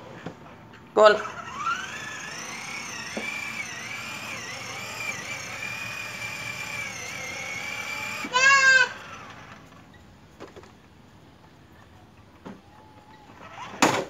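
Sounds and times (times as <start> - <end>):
toy electric motor whining: 1.0 - 9.9, 13.0 - 14.0.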